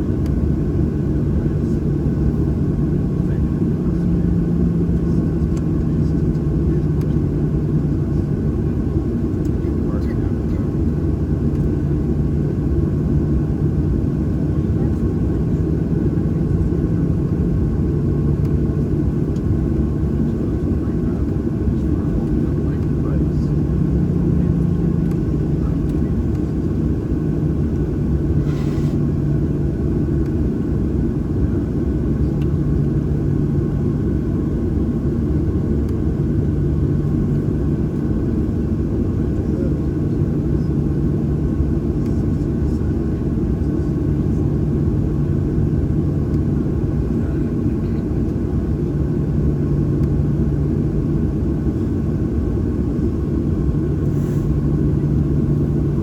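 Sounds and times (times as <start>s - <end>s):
airplane cabin rumble: 0.0s - 56.0s
low hum: 9.4s - 38.7s.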